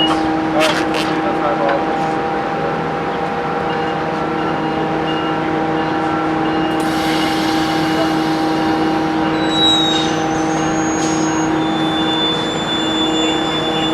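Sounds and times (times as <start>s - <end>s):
train engine hum and rumble: 0.0s - 13.9s
high hiss: 6.8s - 13.9s.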